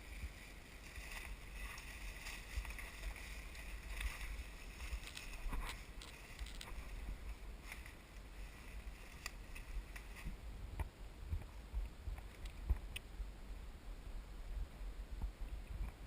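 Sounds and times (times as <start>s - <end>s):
footsteps through undergrowth: 0.0s - 10.4s
low microphone rumble: 0.0s - 16.0s.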